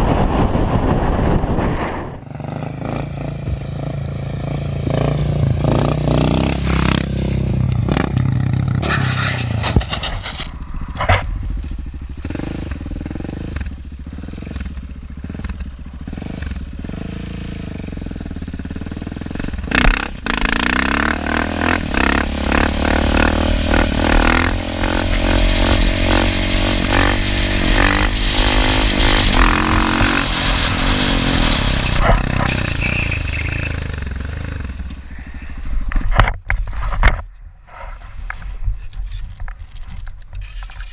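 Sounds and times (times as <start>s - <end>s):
motorcycle engine running: 2.2s - 8.9s, 9.8s - 35.3s.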